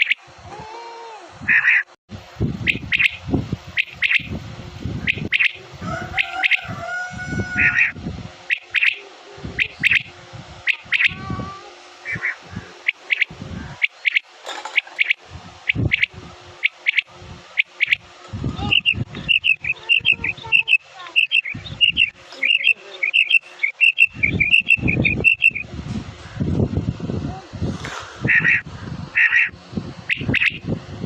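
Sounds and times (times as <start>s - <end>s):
game-bird call chirping: 0.0s - 0.2s, 2.6s - 3.2s, 3.8s - 4.3s, 5.0s - 6.8s, 7.6s - 11.3s, 12.0s - 25.6s, 30.1s - 30.6s.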